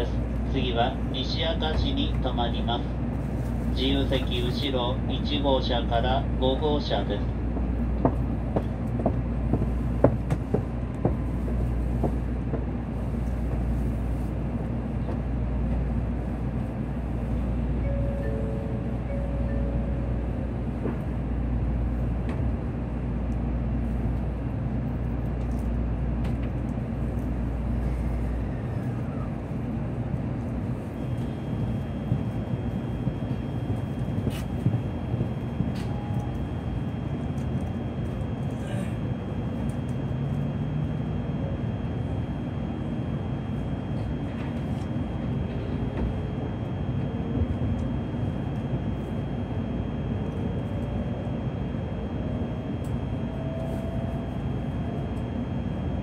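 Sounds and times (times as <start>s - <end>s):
train cabin hum: 0.0s - 56.0s.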